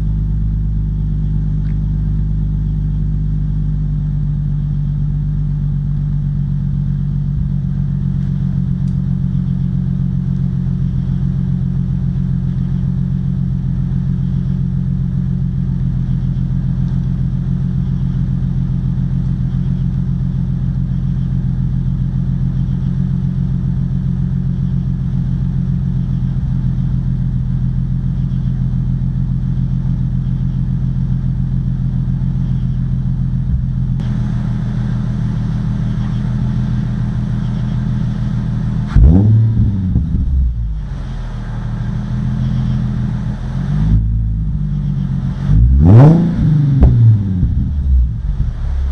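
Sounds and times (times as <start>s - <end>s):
car engine idling: 0.0s - 48.9s.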